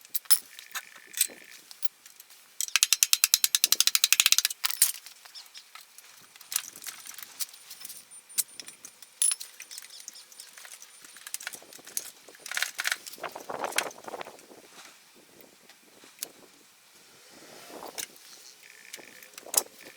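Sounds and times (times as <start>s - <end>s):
metal tools clinking: 0.1s - 1.9s, 2.6s - 5.8s, 6.4s - 13.2s
ratchet wrench clicking: 2.6s - 5.0s.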